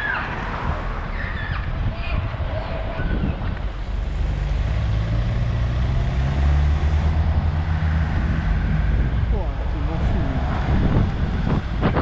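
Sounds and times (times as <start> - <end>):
air and road rumble: 0.0 - 12.0
car engine humming: 3.4 - 12.0.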